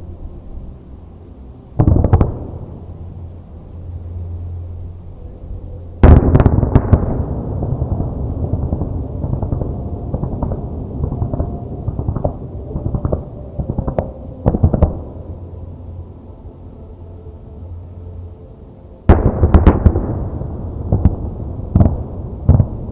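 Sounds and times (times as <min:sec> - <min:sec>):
fireworks booming: 0:01.8 - 0:03.0, 0:06.0 - 0:15.4, 0:19.1 - 0:22.9.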